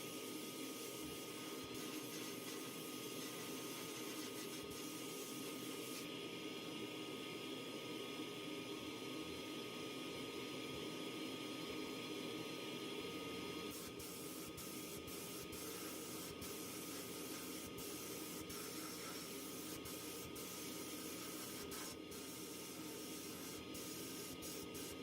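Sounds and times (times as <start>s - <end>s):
compressed air hissing from nozzle: 0.6s - 6.1s, 13.7s - 25.0s.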